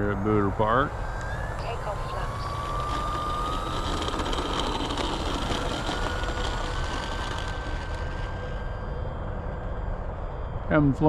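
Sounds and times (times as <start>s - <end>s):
model plane motor whine: 0.0s - 10.6s
rushing noise: 1.0s - 10.7s.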